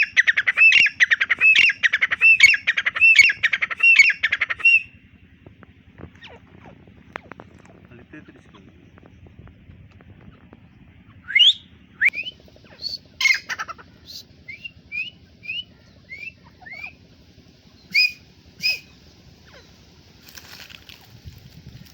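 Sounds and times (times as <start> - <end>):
bird calling shrill notes: 0.0 - 5.0, 11.1 - 17.1, 17.7 - 19.8.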